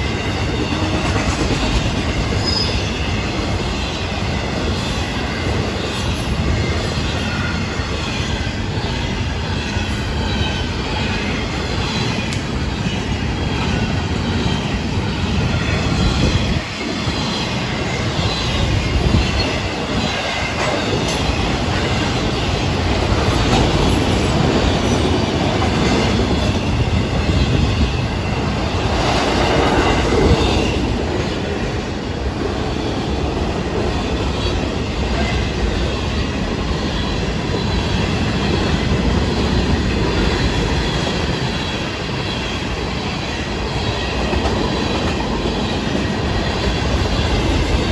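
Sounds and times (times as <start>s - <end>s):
freight train wheels rumbling on rails: 0.0s - 47.9s.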